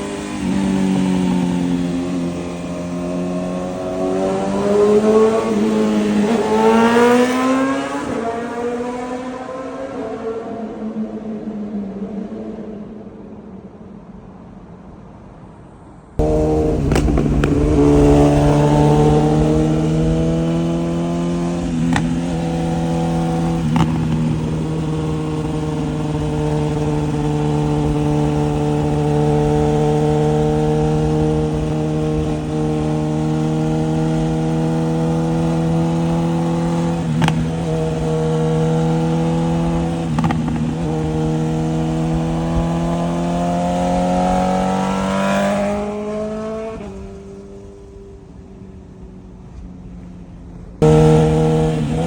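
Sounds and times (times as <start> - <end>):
motorcycle engine running: 16.2 - 42.7, 50.8 - 52.0.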